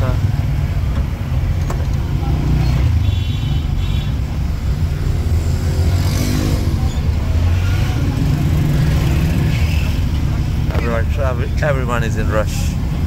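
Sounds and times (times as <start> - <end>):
car engine: 0.0 - 13.0
road rumble: 0.0 - 13.0.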